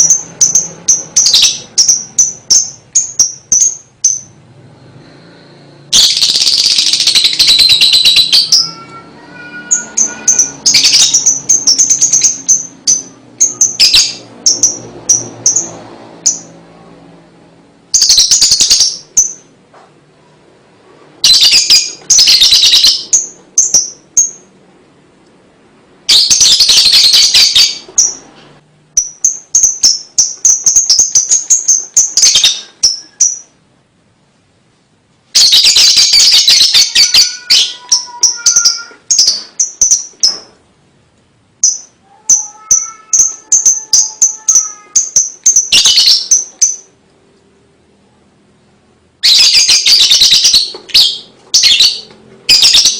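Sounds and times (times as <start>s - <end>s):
lovebird chattering: 0.0s - 4.4s, 5.9s - 16.5s, 18.0s - 19.5s, 21.2s - 24.5s, 29.0s - 33.6s, 35.4s - 40.4s, 41.6s - 47.0s, 49.2s - 52.9s.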